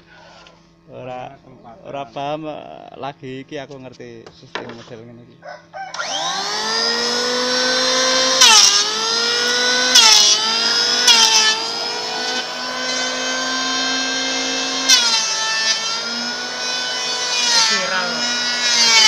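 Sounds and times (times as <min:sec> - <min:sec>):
electric planer whining: 0:05.7 - 0:19.0
planer cutting wood: 0:05.9 - 0:19.0.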